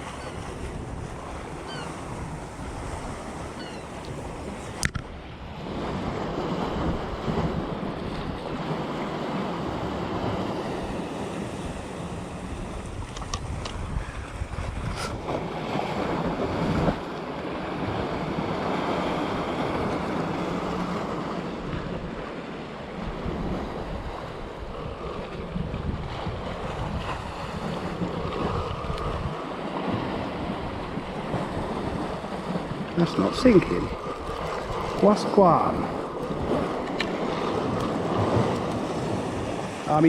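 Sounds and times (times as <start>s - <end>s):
wind buffeting microphone: 0.0s - 17.1s, 23.0s - 39.9s
waves washing against rocks: 23.0s - 40.0s.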